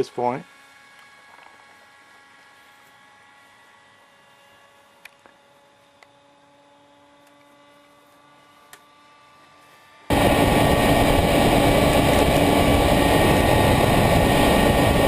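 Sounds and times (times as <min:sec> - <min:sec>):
loud steady rushing noise: 0:10.1 - 0:15.0
low drone: 0:10.1 - 0:15.0.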